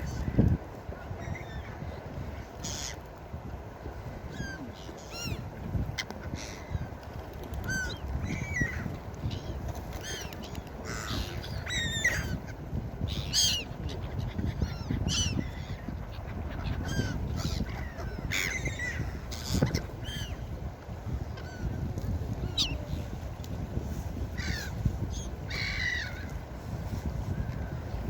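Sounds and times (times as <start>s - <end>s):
gulls calling: 7.6s - 20.6s, 22.4s - 23.1s, 24.3s - 26.4s.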